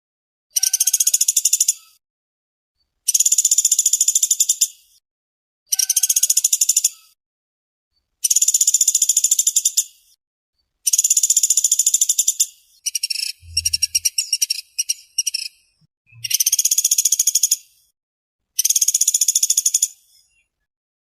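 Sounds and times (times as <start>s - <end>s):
woodpecker rattling trills: 0.6s - 1.7s, 10.9s - 15.5s.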